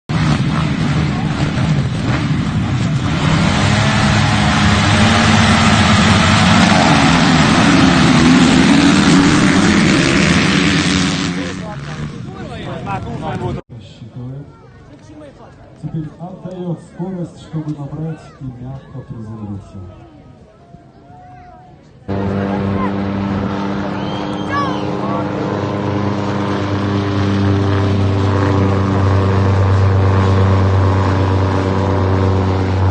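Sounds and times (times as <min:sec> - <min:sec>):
motorcycle engines revving high: 0:00.1 - 0:13.6, 0:22.1 - 0:32.9.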